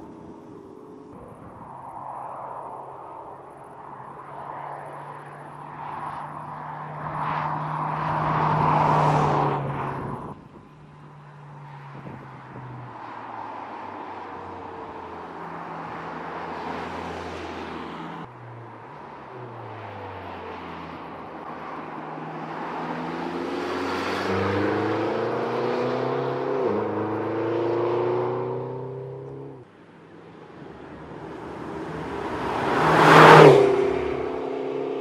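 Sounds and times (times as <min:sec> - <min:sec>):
car engine driving by: 0:30.3 - 0:35.0.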